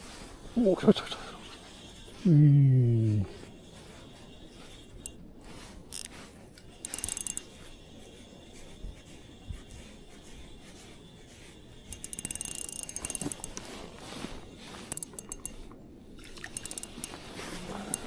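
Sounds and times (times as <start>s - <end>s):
fishing reel clicking: 5.0s - 5.2s, 5.9s - 7.5s, 11.9s - 13.7s, 14.8s - 18.0s
faint watery sounds: 11.0s - 18.0s.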